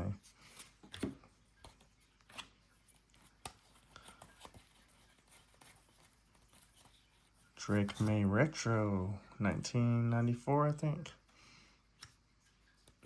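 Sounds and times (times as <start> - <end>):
cards flipped and sliding: 0.3 - 8.2.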